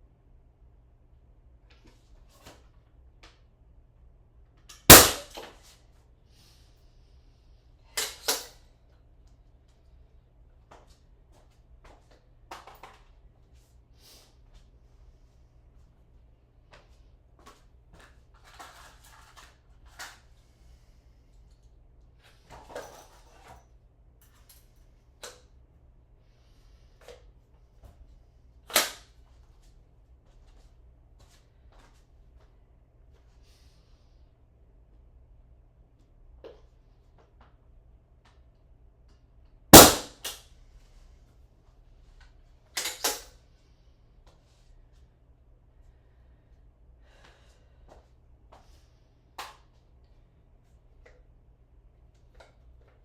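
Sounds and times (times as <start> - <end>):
sharp crack: 4.9 - 5.4, 39.8 - 40.4
nail gun bang: 4.9 - 5.5, 39.8 - 40.4
light clicks scrapes and rustles: 16.8 - 20.3.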